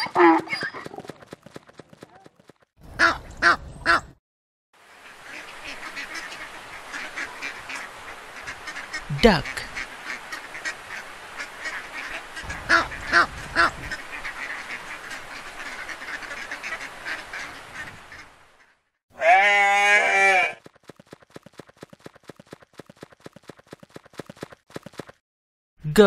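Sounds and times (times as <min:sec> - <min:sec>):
hooves clip-clopping: 0:00.7 - 0:02.7, 0:20.6 - 0:25.2
ducks quacking: 0:02.9 - 0:04.2, 0:05.0 - 0:20.6.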